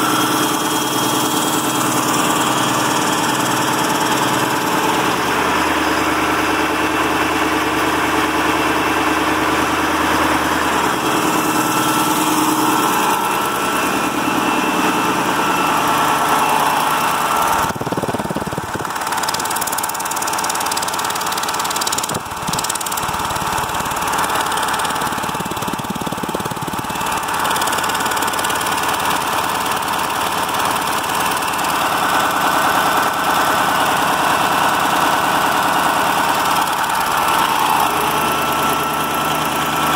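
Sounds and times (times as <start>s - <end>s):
truck diesel engine idling: 0.0s - 39.9s.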